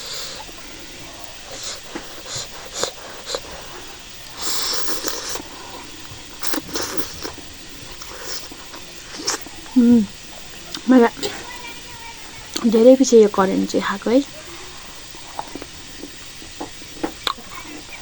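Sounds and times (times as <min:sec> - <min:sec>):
mouth smacks while chewing: 0:00.1 - 0:11.4, 0:15.1 - 0:17.9
breathy noodle slurp: 0:01.4 - 0:09.7.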